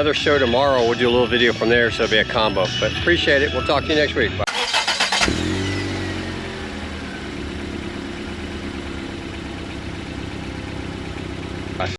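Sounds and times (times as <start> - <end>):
car engine idling: 4.5 - 11.9.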